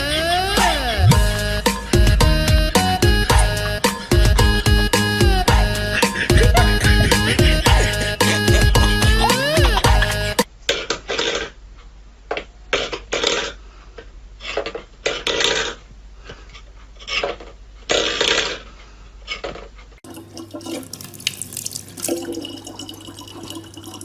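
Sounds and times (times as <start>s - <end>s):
water running: 20.0s - 24.0s.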